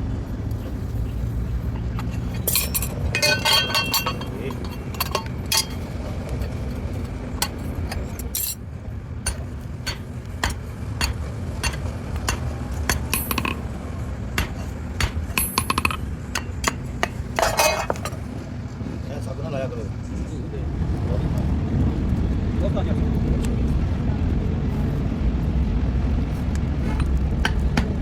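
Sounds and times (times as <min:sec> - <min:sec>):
steady low hum: 0:00.0 - 0:28.0
hand tools clinking on metal: 0:01.1 - 0:08.6, 0:09.2 - 0:13.7, 0:14.4 - 0:18.3, 0:26.8 - 0:27.9.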